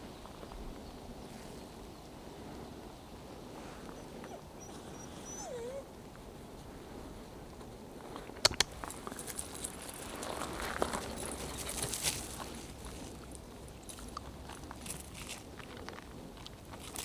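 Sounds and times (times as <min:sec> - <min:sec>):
soft outdoor background: 0:00.0 - 0:17.0
dog whimpering: 0:03.9 - 0:05.9
sharp clicks: 0:08.4 - 0:08.9.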